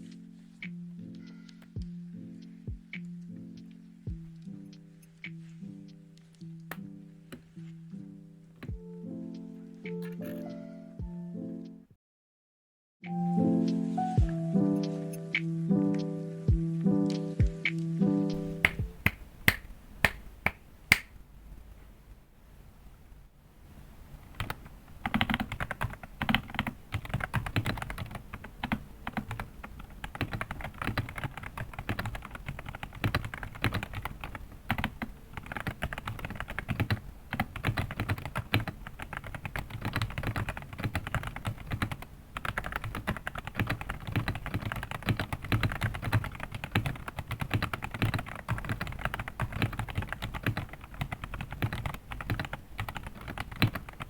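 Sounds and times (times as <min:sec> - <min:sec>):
mechanical keyboard typing: 0:24.4 - 0:54.0.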